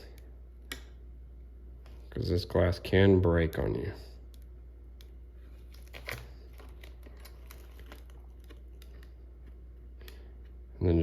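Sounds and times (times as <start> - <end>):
steady low hum: 0.0 - 11.0
plastic film clicking and crinkling: 5.6 - 10.2.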